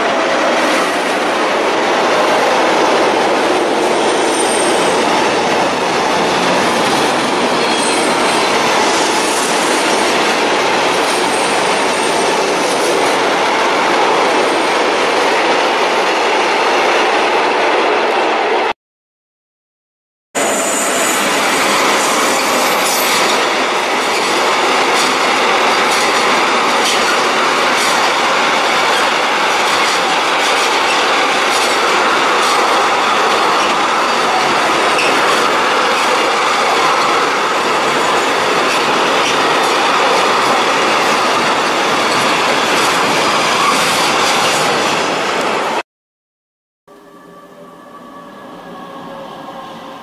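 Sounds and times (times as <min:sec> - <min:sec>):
train wheels rushing on rail: 0:00.0 - 0:18.6, 0:20.4 - 0:45.8
high squeal: 0:04.1 - 0:05.1, 0:07.5 - 0:09.5, 0:20.4 - 0:23.4, 0:46.9 - 0:50.0.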